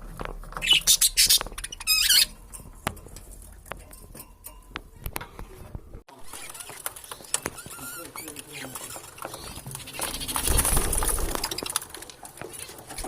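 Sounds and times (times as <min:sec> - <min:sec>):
budgerigars chattering: 0:00.6 - 0:02.3
shrill chirping: 0:00.6 - 0:02.6, 0:06.3 - 0:10.5.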